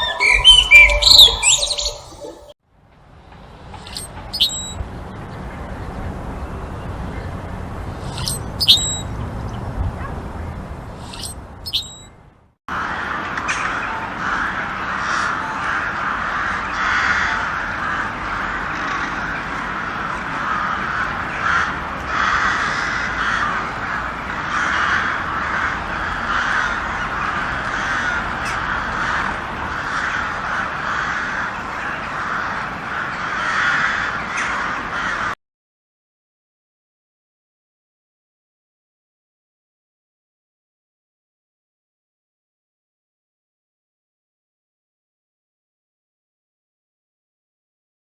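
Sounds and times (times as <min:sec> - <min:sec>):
flock of birds cawing: 0:00.0 - 0:02.5, 0:12.8 - 0:35.4.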